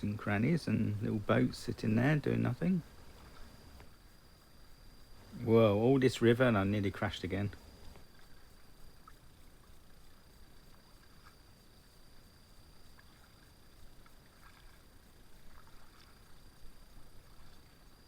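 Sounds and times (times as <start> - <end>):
paddle splashing in water: 12.9 - 18.0.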